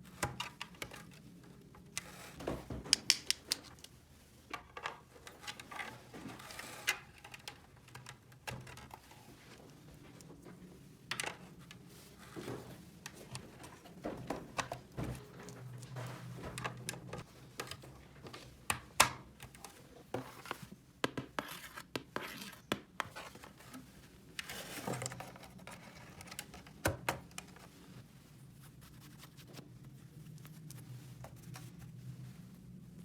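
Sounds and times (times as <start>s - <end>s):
plastic toy pieces clicking: 3.0s - 3.8s
rustle or scrape: 3.7s - 8.1s, 21.4s - 26.7s.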